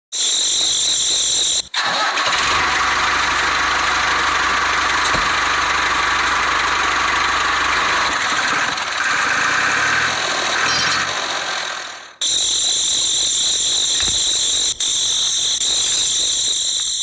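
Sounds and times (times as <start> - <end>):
small motor rattling: 1.8 - 12.0.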